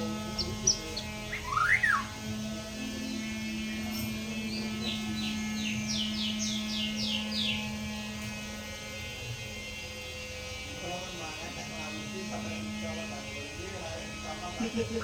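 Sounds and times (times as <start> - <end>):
bird singing: 0.0 - 8.2
steady low hum: 0.0 - 15.0.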